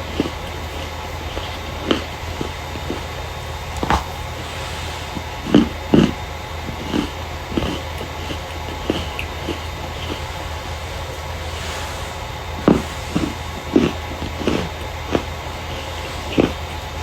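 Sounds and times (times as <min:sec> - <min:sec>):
low hum: 0:00.0 - 0:17.0
starch crunching by hand: 0:05.2 - 0:11.8.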